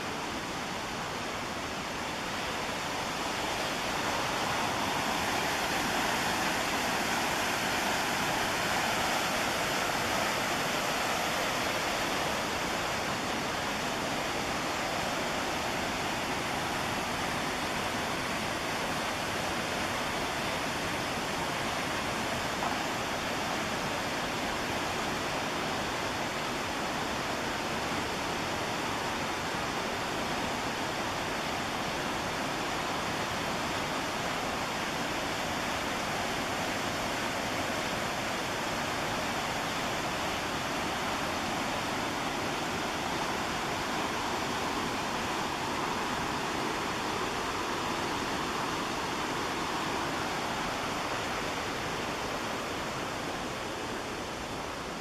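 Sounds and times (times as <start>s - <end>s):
white water rushing: 0.0s - 55.0s.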